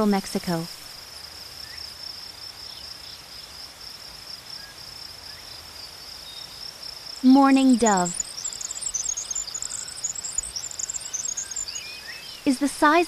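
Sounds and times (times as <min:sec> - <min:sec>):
high-pitched insect chirring: 0:07.2 - 0:12.6.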